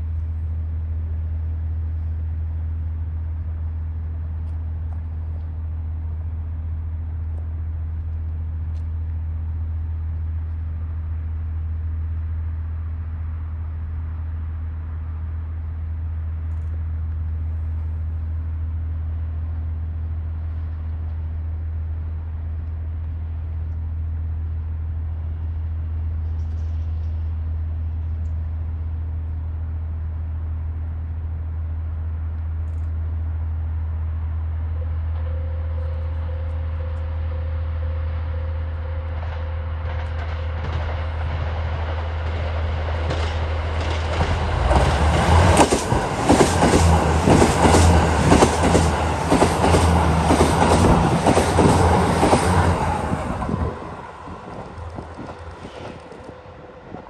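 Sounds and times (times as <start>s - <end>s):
diesel train approaching: 0.0s - 57.0s
train wheels clattering over rail joints: 39.9s - 52.7s.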